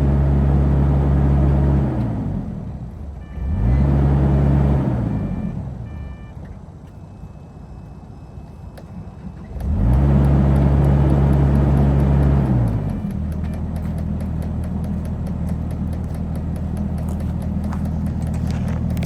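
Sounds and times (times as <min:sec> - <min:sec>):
excavator diesel engine revving: 0:00.0 - 0:06.3, 0:09.0 - 0:19.0
short high beeps: 0:05.1 - 0:06.4.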